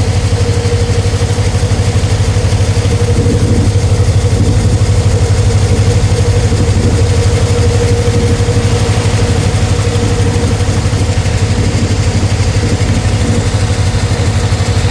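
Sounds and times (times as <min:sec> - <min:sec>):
concrete saw engine running: 0:00.0 - 0:14.9.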